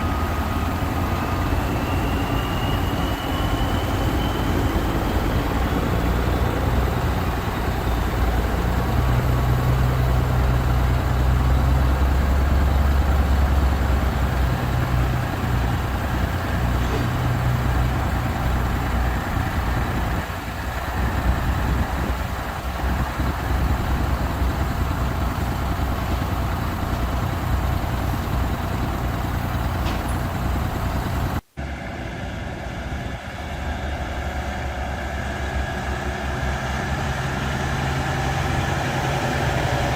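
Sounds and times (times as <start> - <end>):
heavy truck engine running: 0.0 - 39.9.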